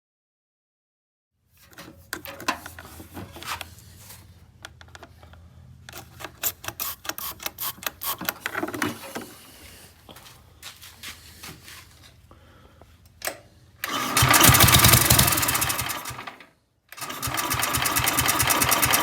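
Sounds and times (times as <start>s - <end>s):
small engine humming: 13.8s - 16.4s, 17.0s - 19.0s
mechanical clicking and clattering: 13.8s - 19.0s.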